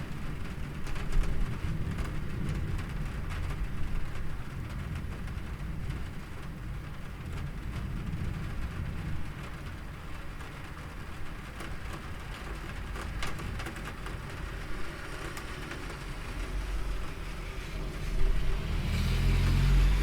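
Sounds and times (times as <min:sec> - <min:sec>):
rain falling: 0:00.0 - 0:20.0
low rumble: 0:16.2 - 0:20.0.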